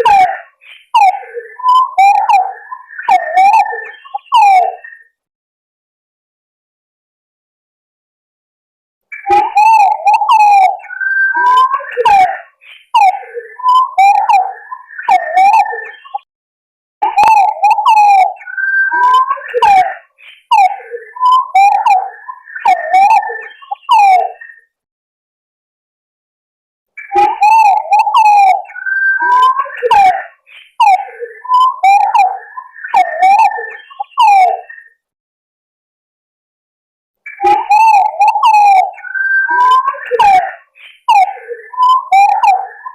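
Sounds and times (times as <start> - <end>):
pigeons whistling calls: 0.0 - 4.7, 9.1 - 16.2, 17.1 - 24.5, 27.0 - 34.8, 37.3 - 42.9.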